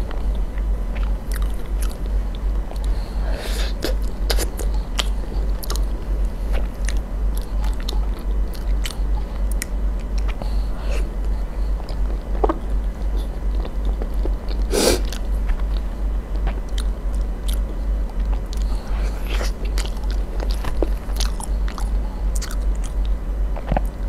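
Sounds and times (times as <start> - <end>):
steady low hum: 0.0 - 24.0
wet chewing with mouth clicks: 0.3 - 3.0, 3.7 - 24.0.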